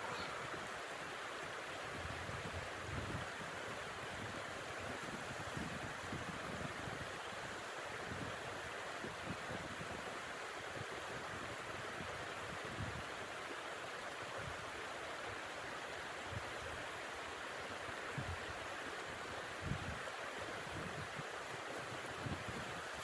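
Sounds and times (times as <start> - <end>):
wind rushing through forest: 0.0 - 23.0.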